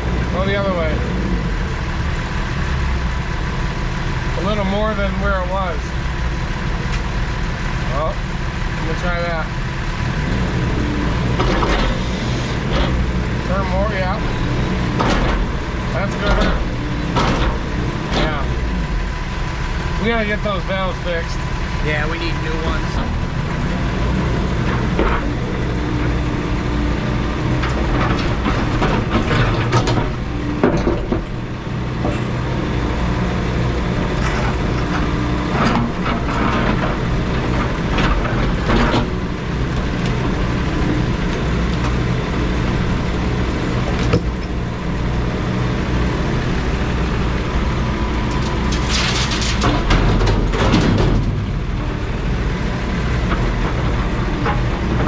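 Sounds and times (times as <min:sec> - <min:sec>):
heavy equipment engine running: 0:00.0 - 0:55.0
metal clanks and knocks: 0:11.3 - 0:12.0, 0:14.9 - 0:18.6, 0:27.6 - 0:31.4, 0:32.0 - 0:32.5, 0:34.0 - 0:39.4, 0:48.3 - 0:51.7.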